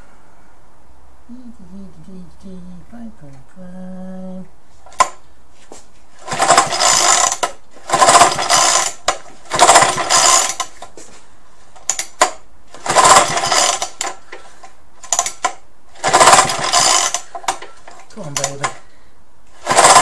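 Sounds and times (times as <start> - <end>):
engine cranking on recoil starter: 6.2 - 10.9, 11.8 - 18.8, 19.5 - 20.0.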